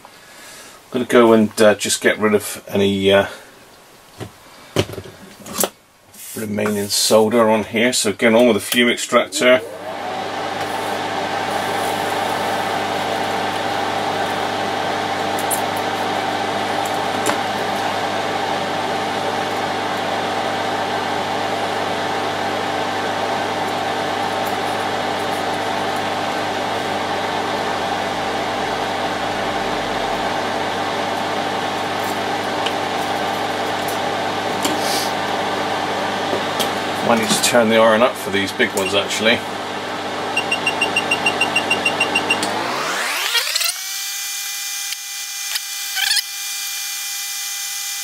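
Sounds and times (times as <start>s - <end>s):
extractor fan whirring: 8.6s - 45.0s.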